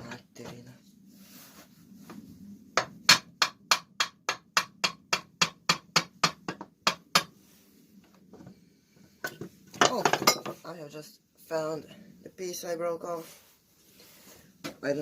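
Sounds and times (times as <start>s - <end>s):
hammer knocking: 2.8s - 7.3s.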